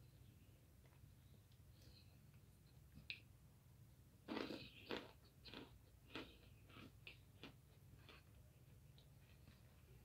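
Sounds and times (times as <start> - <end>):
person crunching food: 4.2 - 9.7.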